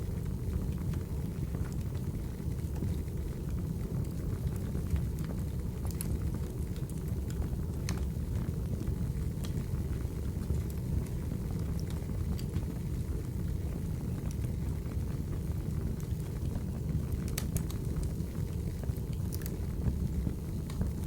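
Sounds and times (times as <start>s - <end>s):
fire crackles and pops: 0.0s - 21.0s
wood fire rumbling: 0.0s - 21.0s.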